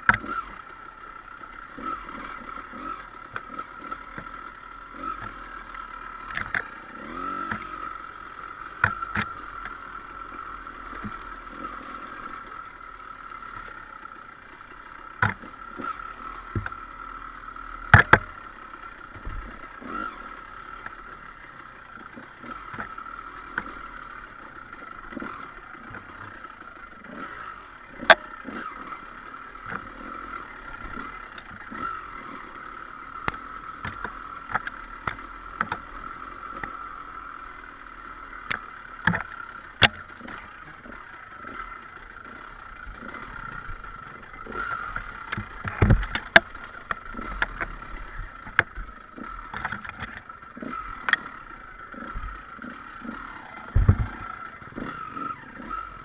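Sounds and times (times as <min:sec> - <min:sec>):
motorcycle engine running: 0:00.0 - 0:56.0
sharp knocks and clatter: 0:33.2 - 0:36.0, 0:38.4 - 0:41.7, 0:44.4 - 0:51.3, 0:53.0 - 0:54.2.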